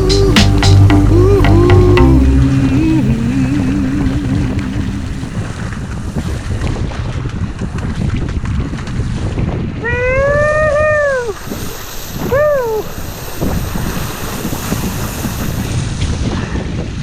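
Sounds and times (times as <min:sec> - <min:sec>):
high-pitched rising and falling calls: 0:00.0 - 0:05.5
wind buffeting microphone: 0:00.0 - 0:17.0
water washing around a boat: 0:02.9 - 0:17.0.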